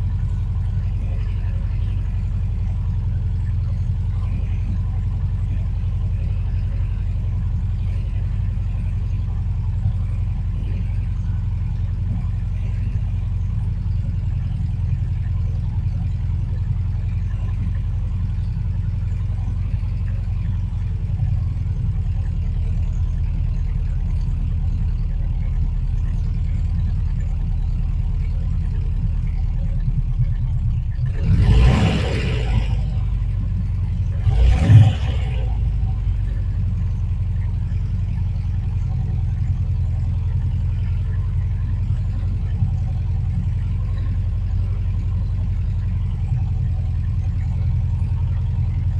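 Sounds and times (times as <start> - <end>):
car engine idling: 0.0 - 48.9.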